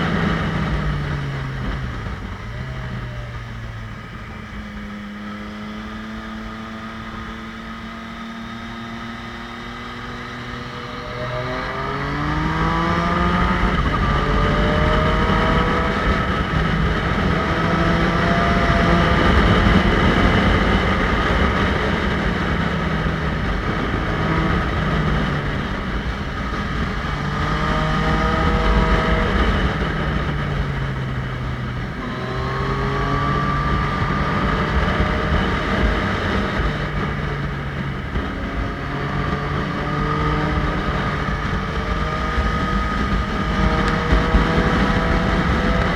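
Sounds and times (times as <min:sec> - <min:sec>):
motorcycle engine pulling hard: 0:00.0 - 0:45.9.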